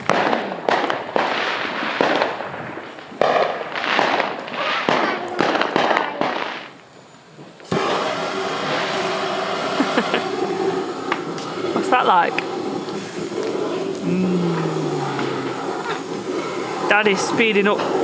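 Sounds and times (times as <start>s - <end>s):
fireworks bangs and crackling: 0.0s - 18.0s
steady whooshing hum: 6.6s - 18.0s.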